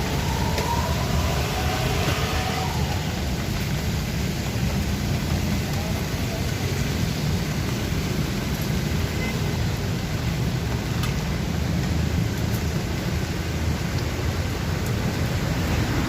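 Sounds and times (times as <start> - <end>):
low rumble: 0.0 - 6.4
steady rain falling: 0.0 - 16.0.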